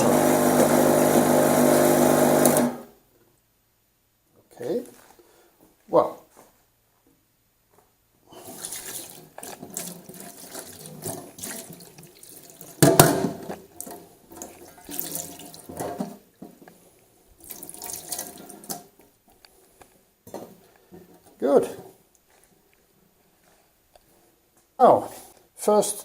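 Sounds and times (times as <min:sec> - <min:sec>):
water running and splashing: 0:00.0 - 0:02.7, 0:08.4 - 0:16.0, 0:17.4 - 0:19.0.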